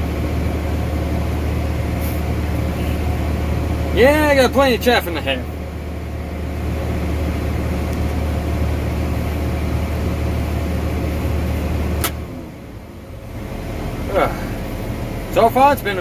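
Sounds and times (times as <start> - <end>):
tractor diesel engine humming: 0.0 - 16.0
sharp click: 12.0 - 12.2.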